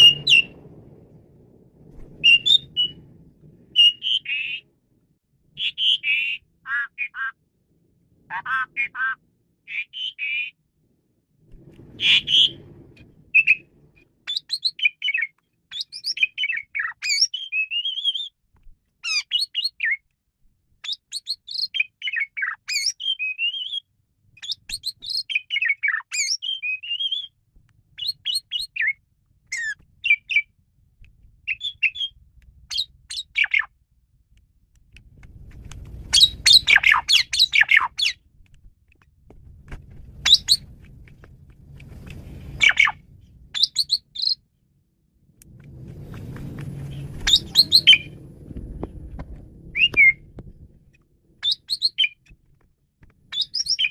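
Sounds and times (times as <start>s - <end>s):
harsh rasping bird calls: 0.0s - 0.6s, 2.2s - 3.0s, 3.7s - 4.7s, 5.5s - 7.4s, 8.3s - 10.6s, 12.0s - 12.6s, 13.3s - 18.4s, 19.0s - 20.0s, 20.8s - 23.8s, 24.4s - 27.3s, 28.0s - 30.5s, 31.4s - 33.8s, 36.1s - 38.2s, 40.2s - 40.7s, 42.5s - 44.4s, 46.8s - 48.2s, 51.4s - 52.3s
starling singing: 0.0s - 0.6s, 2.2s - 3.0s, 3.7s - 4.7s, 5.5s - 7.4s, 8.3s - 10.6s, 12.0s - 12.6s, 14.3s - 18.4s, 20.8s - 23.8s, 28.0s - 30.5s, 31.5s - 33.7s, 36.1s - 38.2s, 40.2s - 40.7s, 42.6s - 44.4s, 46.9s - 48.2s, 49.7s - 50.3s, 51.4s - 52.2s, 53.3s - 53.9s.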